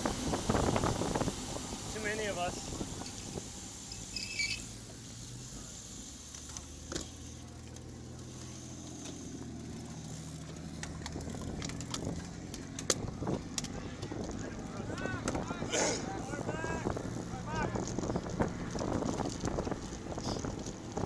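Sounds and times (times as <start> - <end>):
bike tyres humming on road: 0.0 - 21.0.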